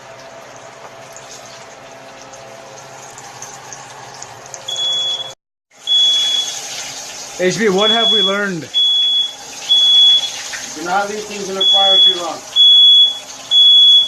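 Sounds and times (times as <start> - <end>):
oil sizzling and crackling: 0.0 - 14.0
smoke alarm beeping: 4.7 - 6.8, 7.5 - 14.0.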